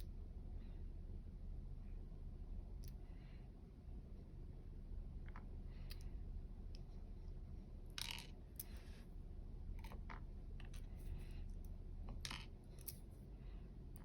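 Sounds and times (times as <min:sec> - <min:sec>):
small metallic clicks: 0:08.0 - 0:08.9, 0:12.1 - 0:13.0.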